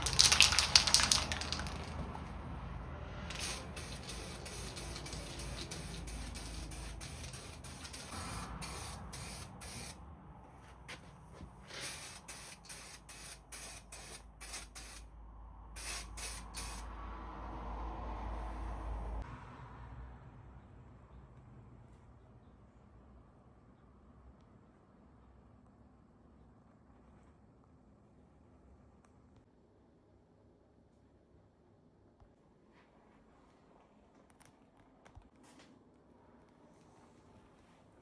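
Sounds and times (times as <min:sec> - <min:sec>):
spray can hissing: 0:00.0 - 0:02.0, 0:03.3 - 0:10.0, 0:11.7 - 0:15.0, 0:15.8 - 0:16.8.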